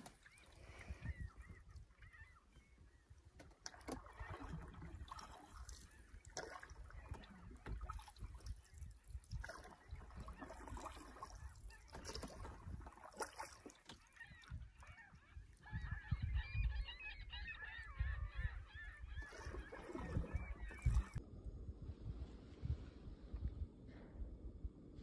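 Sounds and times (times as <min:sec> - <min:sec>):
birds calling: 0:00.0 - 0:07.9, 0:08.6 - 0:21.2
canoe paddling: 0:00.0 - 0:15.6, 0:18.9 - 0:21.2
low rumbling: 0:20.0 - 0:25.0.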